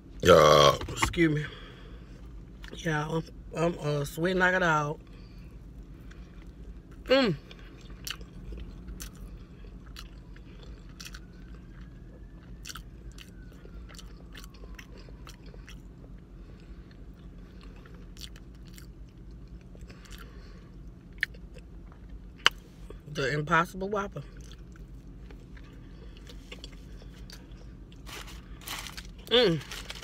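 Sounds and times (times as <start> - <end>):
low steady hum: 0.0 - 30.0
chewing with wet mouth smacks: 6.0 - 22.7, 24.3 - 28.0.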